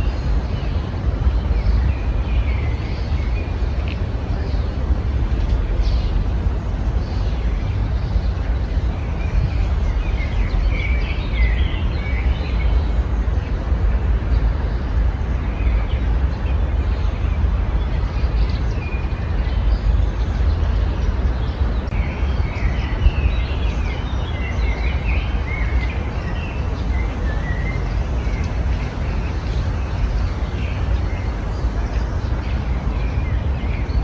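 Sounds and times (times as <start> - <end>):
songbirds chirping: 0.0 - 34.0
steady low rumble: 0.0 - 34.0.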